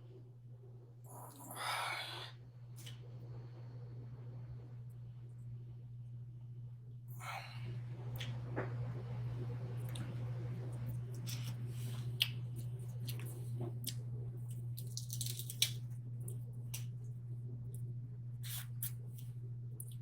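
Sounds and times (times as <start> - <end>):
steady low hum: 0.0 - 20.0
wet eating and chewing sounds: 9.8 - 17.0, 17.6 - 20.0.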